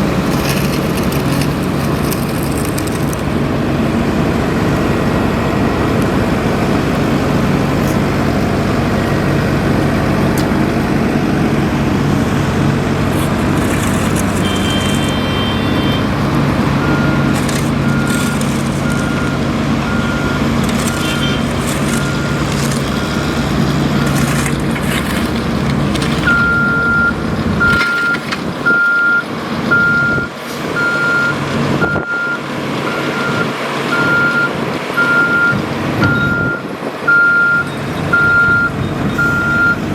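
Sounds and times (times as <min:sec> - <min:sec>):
diesel engine hum: 0:00.0 - 0:39.9
reversing alarm beeping: 0:13.6 - 0:24.5, 0:26.1 - 0:39.9.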